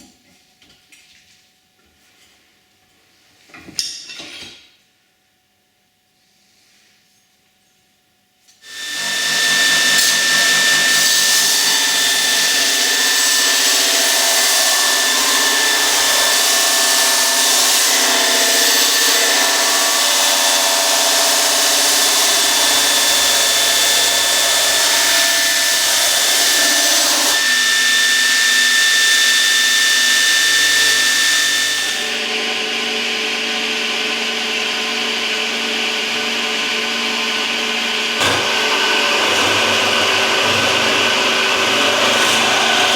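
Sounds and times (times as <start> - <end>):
electric grinder grinding steel: 8.6 - 42.9.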